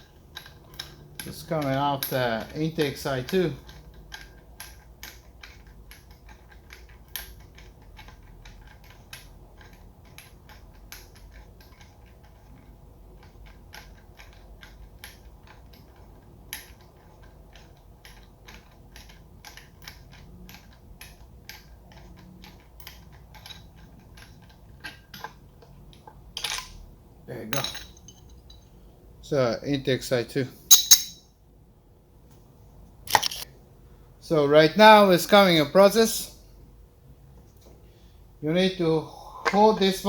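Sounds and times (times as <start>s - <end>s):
metallic clinks of hand tools: 27.5s - 28.3s, 30.7s - 31.2s.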